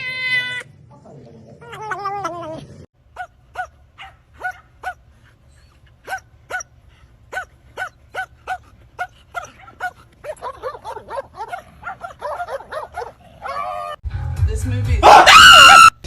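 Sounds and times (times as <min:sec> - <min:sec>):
small dog yipping: 0:03.2 - 0:05.0, 0:05.6 - 0:06.7, 0:07.3 - 0:14.0.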